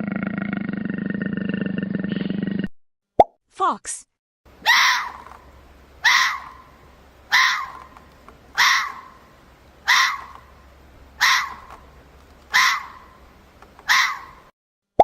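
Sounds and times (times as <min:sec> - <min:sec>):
fox barking: 0:04.6 - 0:05.4, 0:06.0 - 0:10.6, 0:11.2 - 0:11.8, 0:12.4 - 0:14.5.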